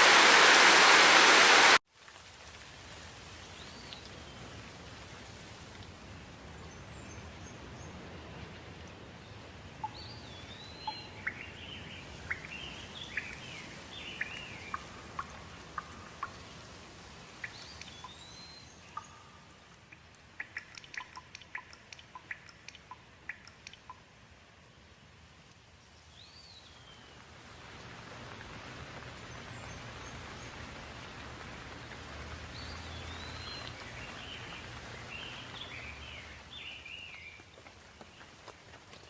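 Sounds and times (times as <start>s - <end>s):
rain hiss: 0.0s - 39.0s
small birds chirping: 9.8s - 16.6s, 17.4s - 24.1s, 32.4s - 38.4s
sharp drips: 14.1s - 16.6s, 18.8s - 24.2s.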